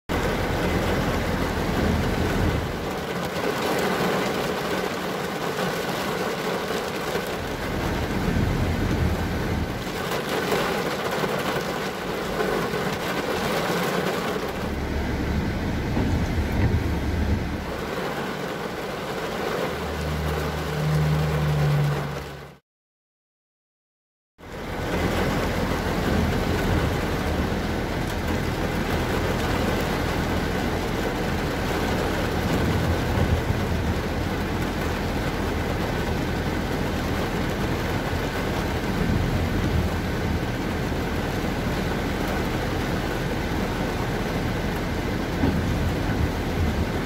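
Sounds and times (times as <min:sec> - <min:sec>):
rain on car windscreen: 0:00.1 - 0:22.6, 0:24.4 - 0:47.0
low engine rumble: 0:07.2 - 0:10.1, 0:12.0 - 0:22.6.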